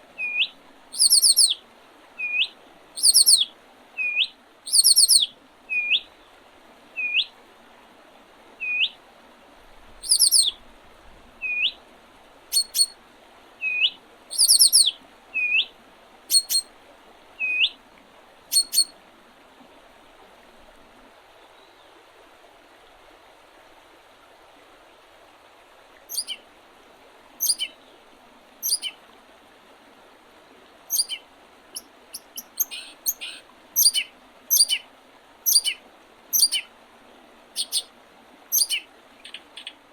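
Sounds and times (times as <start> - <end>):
birds calling upswept notes: 0.2 - 1.6, 2.2 - 6.1, 10.0 - 10.6, 12.5 - 12.9, 13.7 - 15.7, 16.3 - 16.7, 18.5 - 18.9, 26.1 - 26.4, 27.4 - 27.9, 28.6 - 29.0, 30.9 - 34.8, 35.5 - 35.8, 36.4 - 36.7, 37.6 - 37.9, 38.5 - 39.8
sharp high bird chips: 16.3 - 16.6.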